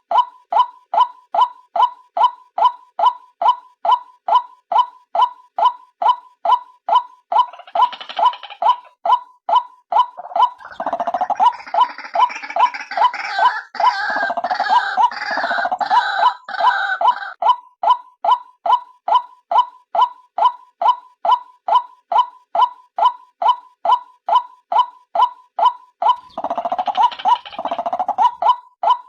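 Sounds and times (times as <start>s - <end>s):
gurgling bird chatter: 7.4s - 8.9s, 10.2s - 17.4s, 26.1s - 28.5s.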